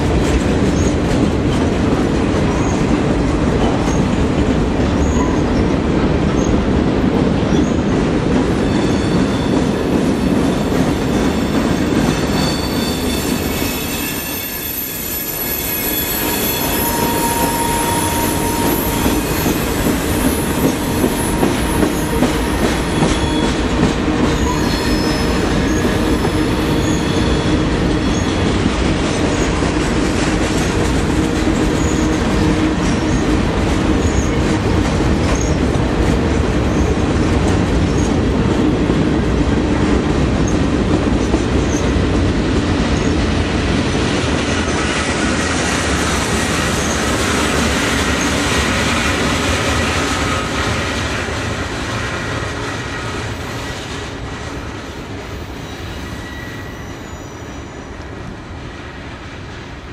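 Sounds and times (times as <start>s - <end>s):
freight train rumbling past: 0.0s - 59.9s
high wheel squeal: 8.6s - 28.6s, 55.2s - 58.0s.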